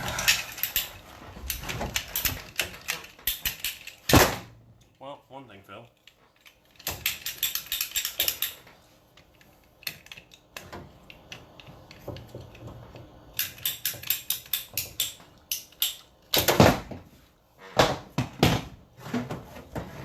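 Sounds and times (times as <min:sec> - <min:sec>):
tools clicking and rattling: 0:00.0 - 0:05.0, 0:05.8 - 0:16.7.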